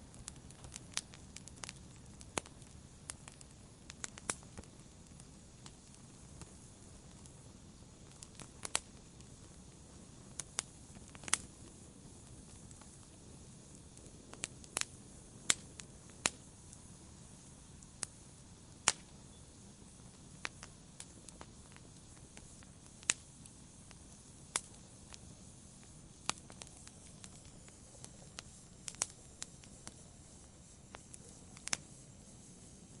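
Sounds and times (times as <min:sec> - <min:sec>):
campfire crackling: 0:00.0 - 0:33.0.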